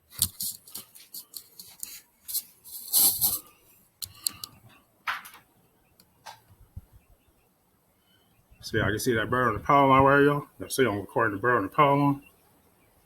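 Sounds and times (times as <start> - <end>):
handling clicks and rustles: 0.0 - 6.6.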